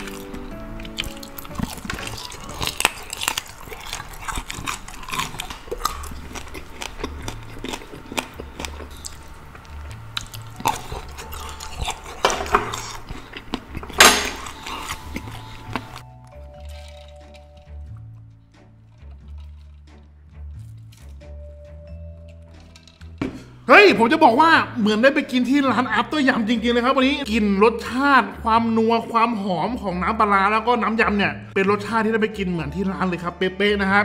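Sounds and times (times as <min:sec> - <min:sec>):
wet mouth sounds: 0:00.0 - 0:18.3
man biting and chewing crunchy food: 0:00.0 - 0:23.6
soft background music with bass: 0:00.0 - 0:34.0.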